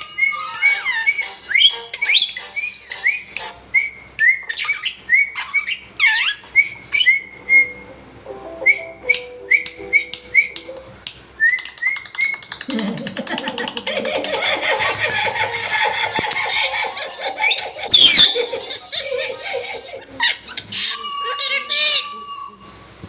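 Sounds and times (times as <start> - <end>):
parrot whistling rising notes: 0.1 - 7.8, 17.5 - 18.8
parrot squawking: 0.2 - 3.4, 4.2 - 7.4, 17.3 - 22.7.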